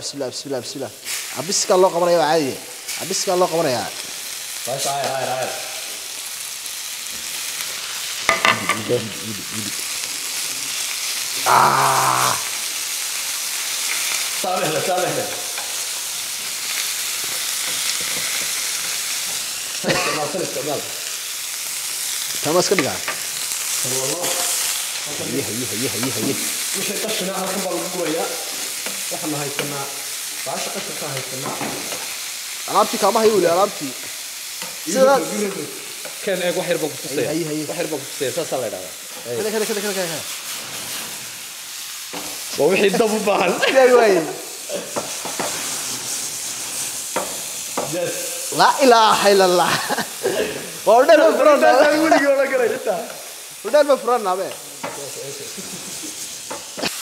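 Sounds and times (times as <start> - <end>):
food sizzling in hot oil: 0.0 - 57.0
spatula stirring in pan: 44.8 - 48.0.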